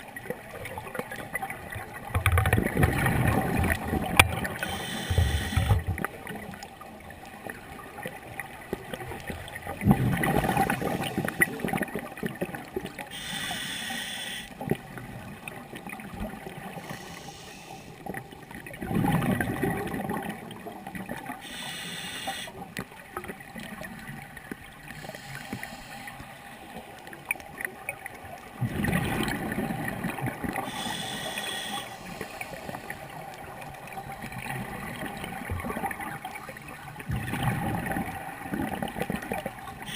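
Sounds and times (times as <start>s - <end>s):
hissing regulator inhale: 4.6s - 5.8s, 13.1s - 14.6s, 16.8s - 18.0s, 21.4s - 22.6s, 25.0s - 26.4s, 30.6s - 33.1s.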